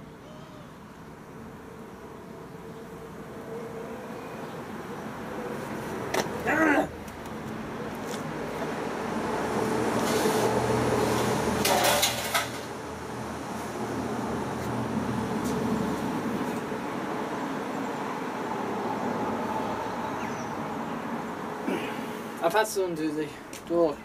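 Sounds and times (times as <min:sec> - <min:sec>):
knocks and clatter of machine parts: 0:11.6 - 0:12.7.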